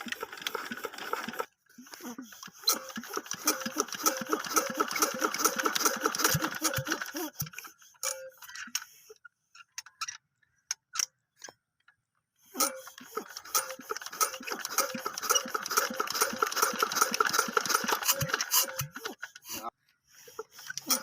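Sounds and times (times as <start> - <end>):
scattered clicks and knocks: 2.4 - 8.9.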